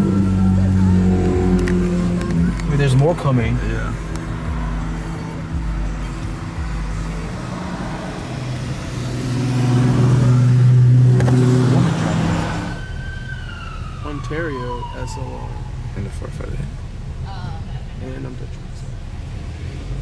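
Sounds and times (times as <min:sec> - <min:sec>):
police siren wailing: 0:00.0 - 0:06.9, 0:09.2 - 0:16.2
sports cars driving past: 0:00.0 - 0:14.0.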